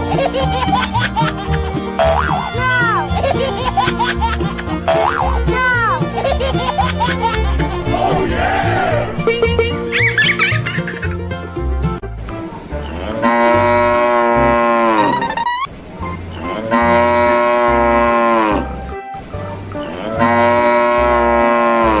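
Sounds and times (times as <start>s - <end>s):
cow mooing: 13.0s - 15.2s, 16.5s - 18.7s, 20.0s - 22.0s.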